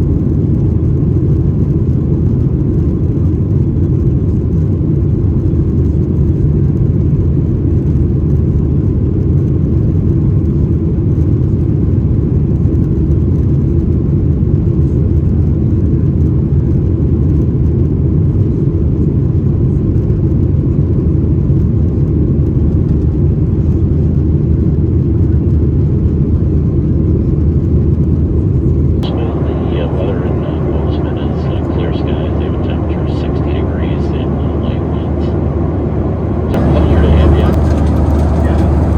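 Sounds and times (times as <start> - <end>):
airplane cabin engine rumble: 0.0 - 9.0, 18.2 - 38.9.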